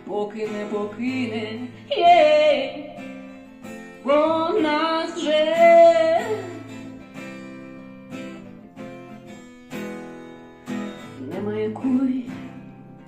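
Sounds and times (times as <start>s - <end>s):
person singing: 0.0s - 3.1s, 4.1s - 6.8s, 11.2s - 13.0s
acoustic guitar strumming: 0.0s - 13.0s.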